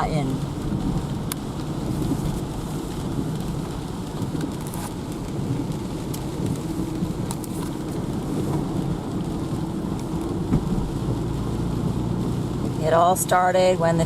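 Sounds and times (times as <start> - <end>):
low rumble: 0.0 - 14.0
steady rain: 0.0 - 14.0.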